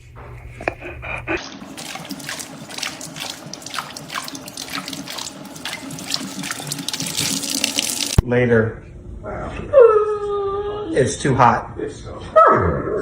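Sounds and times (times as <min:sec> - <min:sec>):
water running and splashing: 0:01.4 - 0:08.2.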